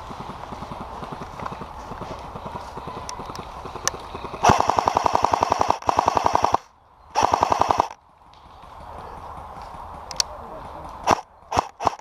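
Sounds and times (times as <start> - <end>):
airsoft gun automatic bursts: 3.7 - 8.0, 11.0 - 12.0.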